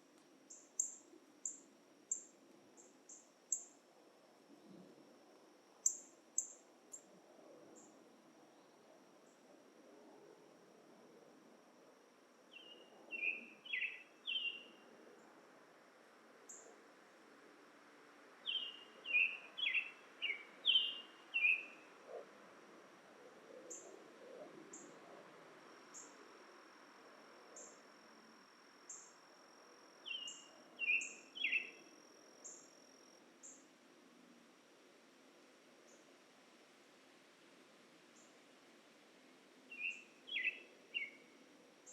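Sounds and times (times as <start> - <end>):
high insect drone: 0.1 - 36.2
songbird singing: 0.5 - 3.7, 5.8 - 7.0, 12.5 - 14.8, 18.4 - 22.2, 27.6 - 27.9, 28.8 - 32.7, 39.7 - 41.9.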